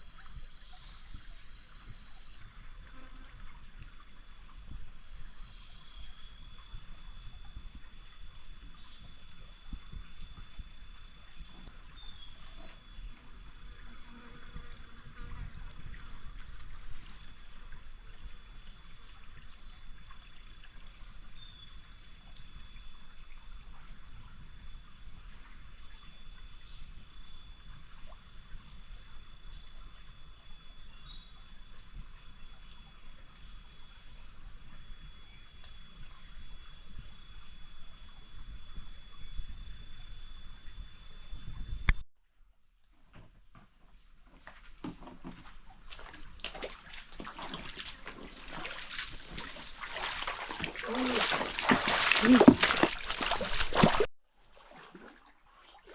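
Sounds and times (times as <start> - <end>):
insects trilling: 0.0 - 42.0, 43.2 - 54.1.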